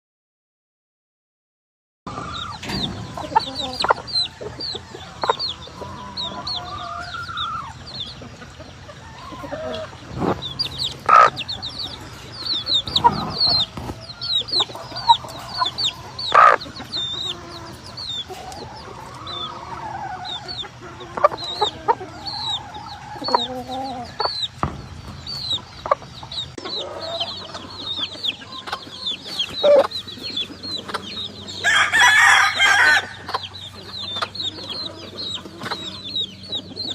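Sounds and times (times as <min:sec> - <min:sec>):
chickens clucking: 0:02.1 - 0:36.9
rapid high chirping: 0:02.3 - 0:36.9
rooster crowing: 0:31.6 - 0:33.4.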